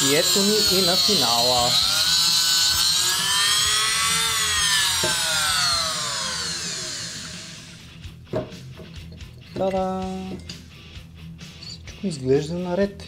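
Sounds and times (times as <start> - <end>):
rotary power tool whining: 0.0 - 8.1.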